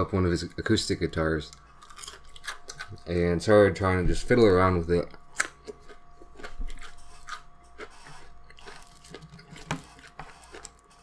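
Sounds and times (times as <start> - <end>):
chewing and crunching: 1.4 - 3.3, 5.0 - 11.0.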